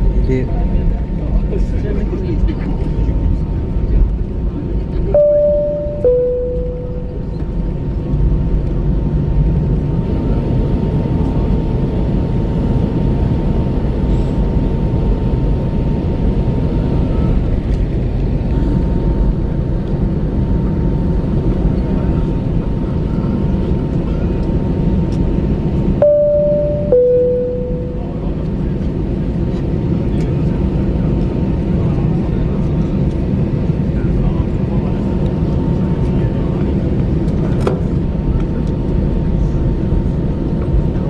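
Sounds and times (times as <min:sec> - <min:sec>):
low aircraft cabin rumble: 0:00.0 - 0:41.0
two-tone cabin chime: 0:05.2 - 0:07.3, 0:26.0 - 0:28.2
faint steady hum: 0:05.2 - 0:07.5, 0:26.0 - 0:28.5.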